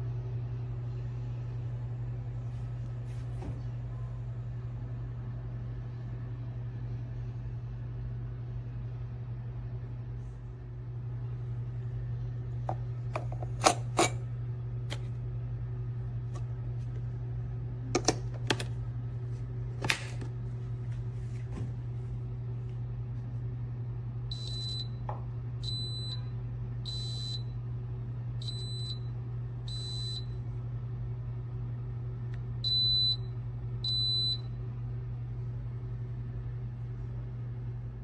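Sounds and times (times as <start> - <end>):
steady low hum: 0.0 - 38.0
coffee maker beeping: 13.2 - 14.2, 24.3 - 26.3, 26.9 - 27.5.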